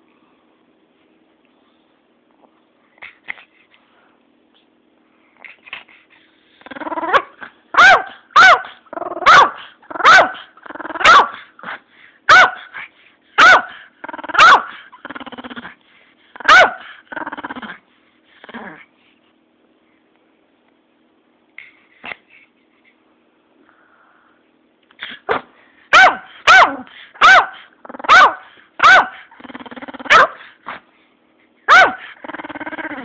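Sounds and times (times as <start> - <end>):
dog growling: 6.6 - 7.5, 8.9 - 11.1, 14.0 - 15.8, 16.4 - 17.8, 18.4 - 18.9, 29.2 - 30.4, 32.0 - 33.0
dog barking: 7.1 - 11.4, 12.3 - 12.7, 13.4 - 13.8, 14.4 - 14.7, 16.4 - 16.8, 25.3 - 29.2, 30.1 - 30.4, 31.7 - 32.1.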